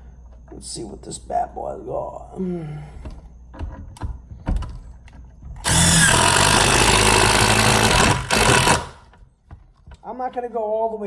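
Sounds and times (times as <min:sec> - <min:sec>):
impact driver driving a screw: 0:05.6 - 0:09.1.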